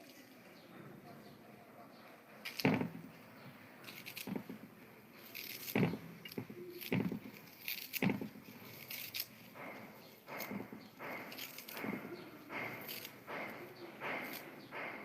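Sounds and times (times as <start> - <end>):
person chewing crunchy food: 3.9 - 14.5.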